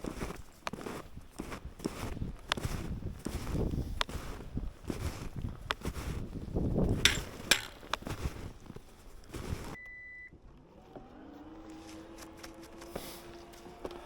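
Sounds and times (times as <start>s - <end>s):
snowshoes crunching through snow: 0.0s - 9.8s, 11.3s - 14.0s
short electronic beep: 9.8s - 10.4s.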